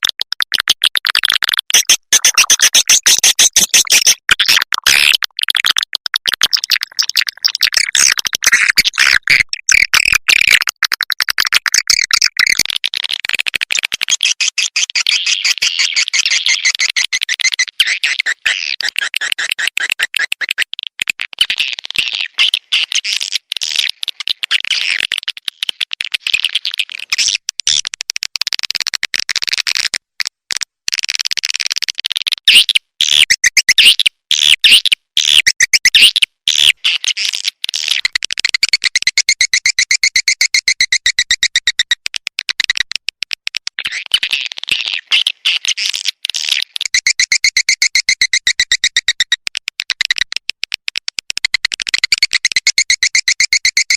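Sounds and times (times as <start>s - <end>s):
swiftlets twittering and chirping: 1.7s - 4.2s, 14.1s - 20.6s, 45.0s - 49.4s, 52.0s - 53.9s.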